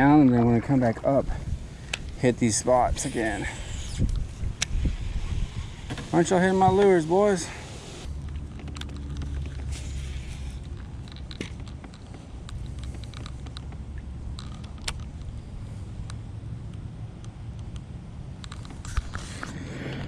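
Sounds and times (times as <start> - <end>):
wind rumbling on microphone: 0.0 - 16.2
clicks and rattles of gear: 8.1 - 15.4, 18.4 - 19.6.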